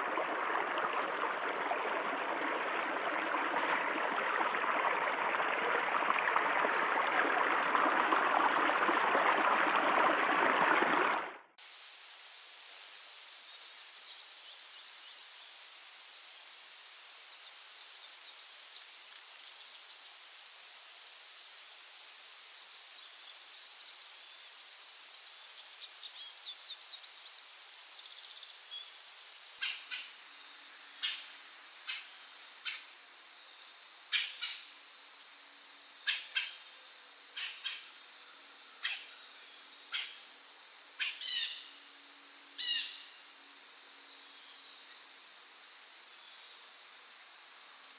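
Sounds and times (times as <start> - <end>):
insects trilling: 11.6 - 47.9.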